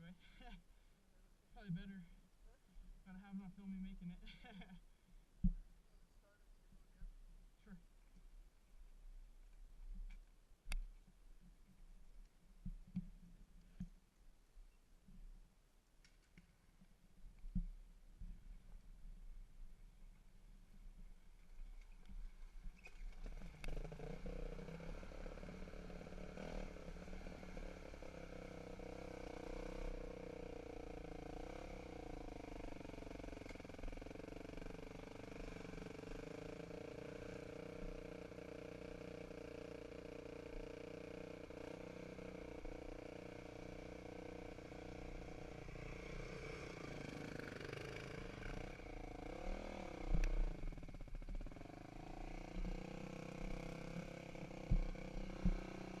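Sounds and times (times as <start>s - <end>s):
dirt bike engine running: 22.0s - 56.0s.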